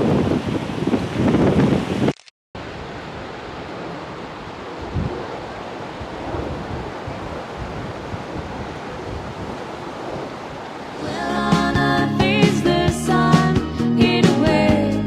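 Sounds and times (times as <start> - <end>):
strong wind buffeting microphone: 0.0 - 11.2
music: 11.0 - 15.0.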